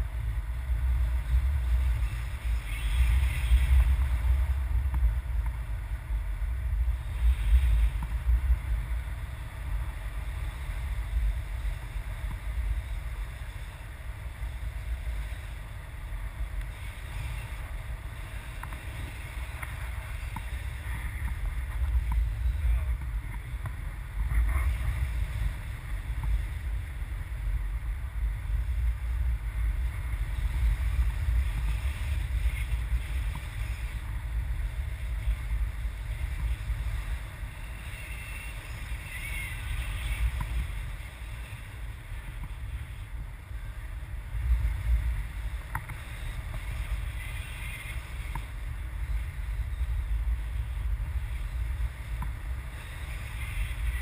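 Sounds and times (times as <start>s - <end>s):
wind buffeting microphone: 0.0s - 54.0s
faint ticks: 45.6s - 48.7s.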